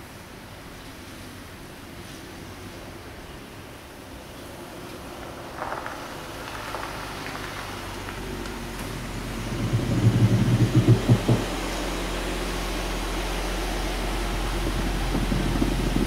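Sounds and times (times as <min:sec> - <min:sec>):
car engine starting and idling: 0:02.3 - 0:16.0.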